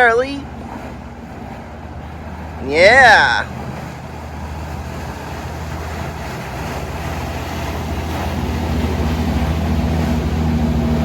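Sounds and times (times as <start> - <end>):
motorboat engines running: 0.0 - 11.0.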